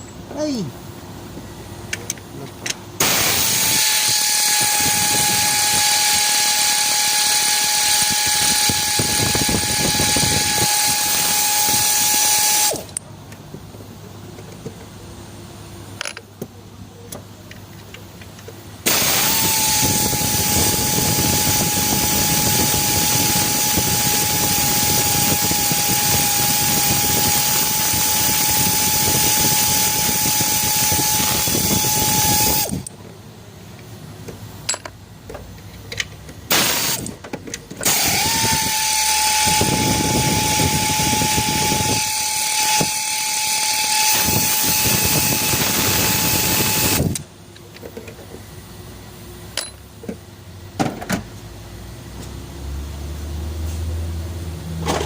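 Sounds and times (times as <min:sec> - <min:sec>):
loud hiss: 0:03.0 - 0:12.9, 0:18.8 - 0:32.8, 0:36.5 - 0:37.1
power tool high whine: 0:03.0 - 0:12.9, 0:18.9 - 0:32.9, 0:36.5 - 0:37.1, 0:37.8 - 0:47.2.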